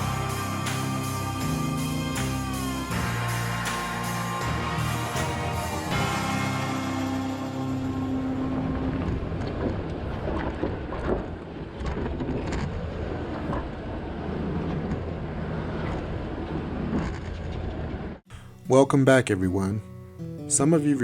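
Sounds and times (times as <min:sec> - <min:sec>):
vehicle exhaust low drone: 0:00.0 - 0:11.8.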